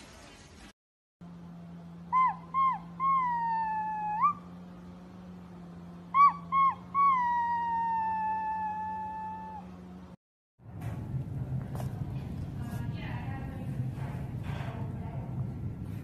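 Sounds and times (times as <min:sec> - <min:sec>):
steady low hum: 0:01.2 - 0:16.0
yips and howling: 0:02.0 - 0:04.8, 0:05.9 - 0:10.2.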